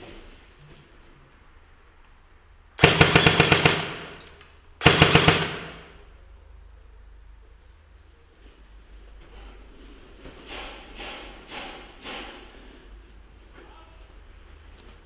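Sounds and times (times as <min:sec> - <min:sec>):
airsoft rifle bursts: 0:02.8 - 0:06.0.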